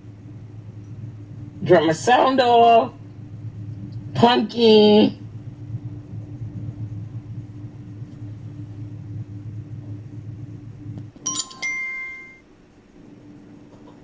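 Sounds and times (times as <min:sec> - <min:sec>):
car engine hum in cabin: 0:00.0 - 0:14.0
short electronic chime: 0:11.3 - 0:12.4.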